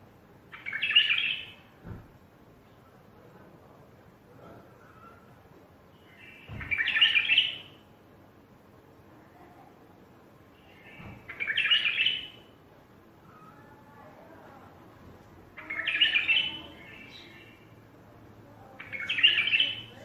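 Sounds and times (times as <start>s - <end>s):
soft bird calls: 4.5s - 7.8s, 10.6s - 12.5s, 15.6s - 17.8s, 18.6s - 20.0s.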